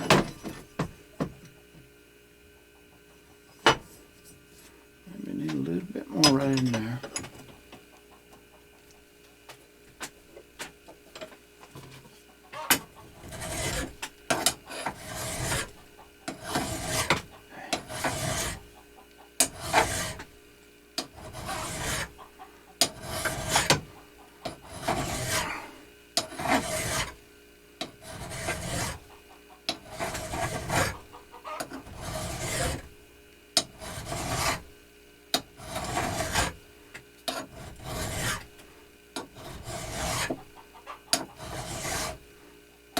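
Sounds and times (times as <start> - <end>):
hand tool scraping strokes: 13.1 - 18.7, 19.4 - 20.3, 21.0 - 22.2, 22.8 - 23.9, 24.5 - 27.2, 27.8 - 29.1, 29.7 - 32.9, 33.6 - 34.7, 35.6 - 36.6, 37.3 - 40.5, 41.1 - 42.2.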